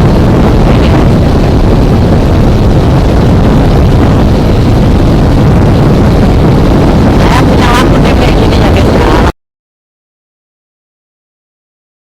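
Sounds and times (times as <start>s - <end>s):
wind rushing over microphone: 0.0s - 9.4s.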